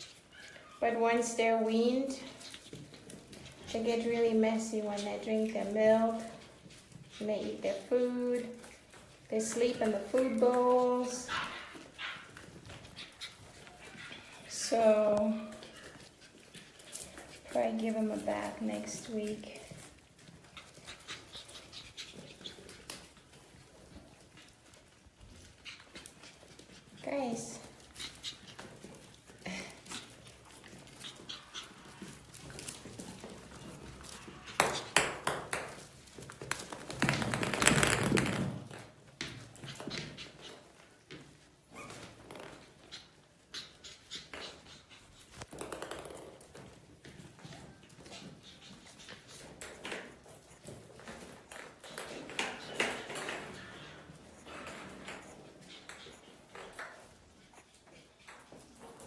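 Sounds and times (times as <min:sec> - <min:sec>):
puppies moving about: 0:00.0 - 0:59.0
high puppy whimpers: 0:00.1 - 0:01.0, 0:41.7 - 0:42.2.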